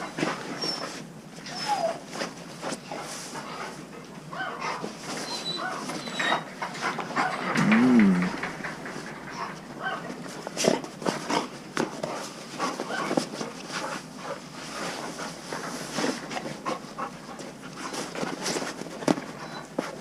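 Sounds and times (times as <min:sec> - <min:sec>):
dog whining faintly: 0:00.0 - 0:02.3, 0:04.3 - 0:08.6
dog scuffling in kennel: 0:00.0 - 0:07.6, 0:08.3 - 0:20.0.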